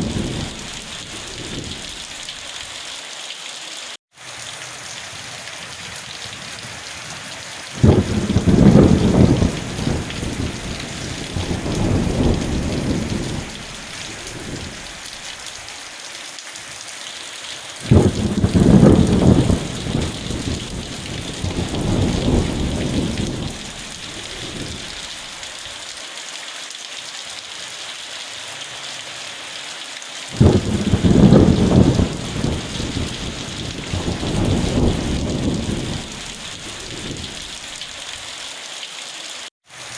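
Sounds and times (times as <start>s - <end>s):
thunder rolling: 0.0s - 2.2s, 5.6s - 15.0s, 17.9s - 25.1s, 30.4s - 37.6s
steady rain hiss: 0.0s - 39.9s.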